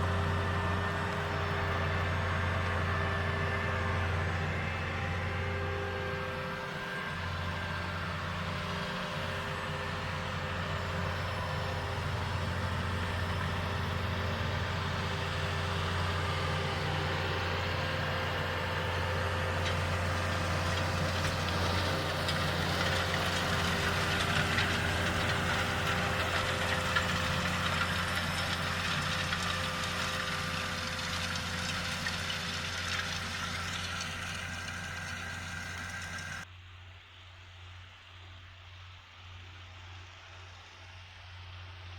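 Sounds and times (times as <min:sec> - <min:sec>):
tractor diesel engine running: 0:00.0 - 0:36.5.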